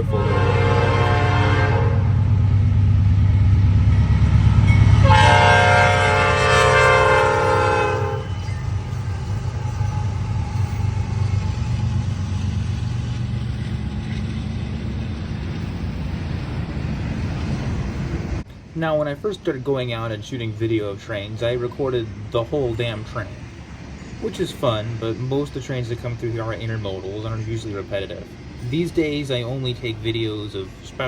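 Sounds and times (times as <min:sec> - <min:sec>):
train horn chord: 0:00.0 - 0:02.2, 0:05.0 - 0:08.4
diesel locomotive engine rumbling: 0:00.0 - 0:31.0
train rolling by: 0:00.0 - 0:31.0.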